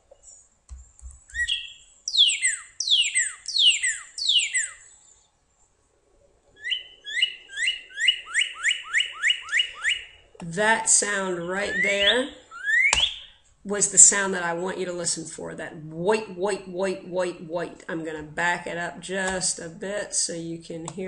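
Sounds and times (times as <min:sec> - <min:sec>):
cardinal whistling song: 0:01.3 - 0:04.9, 0:06.6 - 0:10.2, 0:11.7 - 0:13.4.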